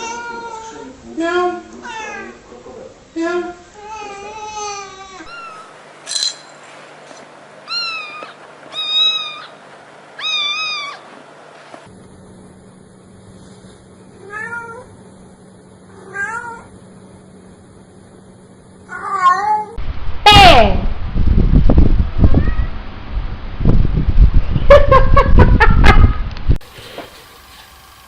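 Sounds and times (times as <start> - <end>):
cat meowing: 0.0 - 0.9, 3.9 - 5.7, 7.7 - 9.6, 10.2 - 11.1, 14.2 - 14.9, 16.0 - 16.7, 22.3 - 22.7
background hum: 0.0 - 28.0.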